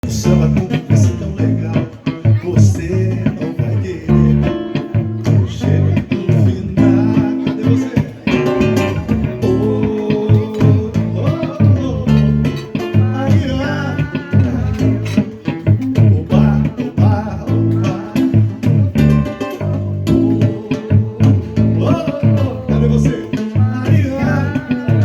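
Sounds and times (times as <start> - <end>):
bass: 0.0 - 25.0
person singing: 0.0 - 25.0
strummed acoustic guitar: 0.0 - 25.0.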